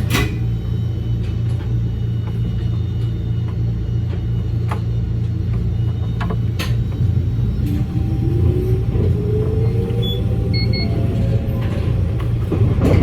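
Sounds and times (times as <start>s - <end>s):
train rumbling: 0.0s - 13.0s
train motor whine rising: 5.4s - 13.0s.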